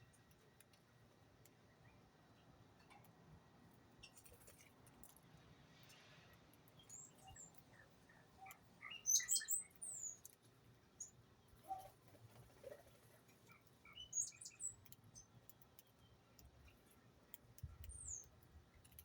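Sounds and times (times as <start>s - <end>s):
small birds chirping: 5.9s - 19.0s.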